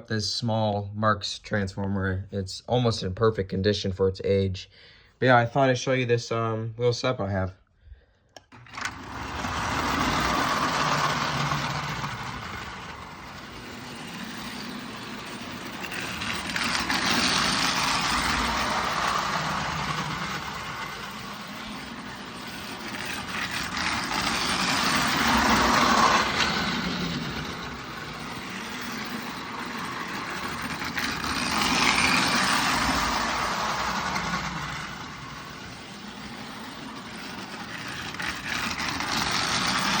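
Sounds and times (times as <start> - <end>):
toy train motor whirr: 8.4 - 40.0.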